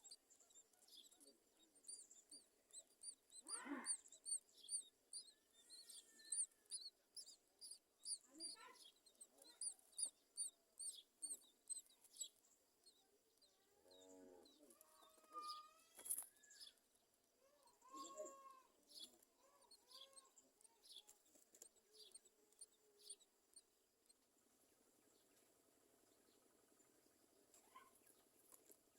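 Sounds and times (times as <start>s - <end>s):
myna birds chirping: 0.0s - 28.9s.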